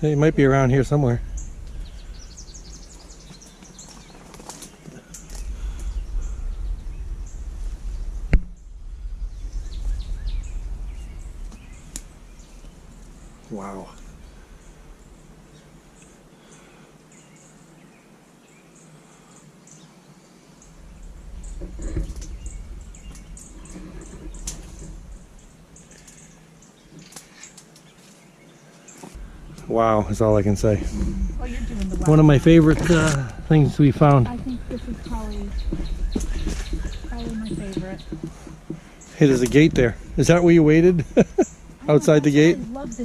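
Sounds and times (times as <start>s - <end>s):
wind rumble on microphone: 0.0s - 4.4s, 5.1s - 15.4s, 20.6s - 26.4s, 29.2s - 43.0s
birds chirping faintly: 0.0s - 43.0s.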